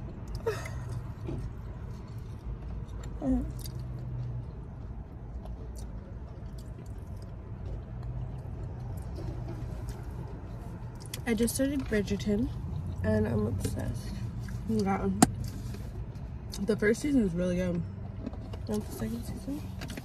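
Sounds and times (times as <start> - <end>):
person chewing food: 0.0 - 11.2.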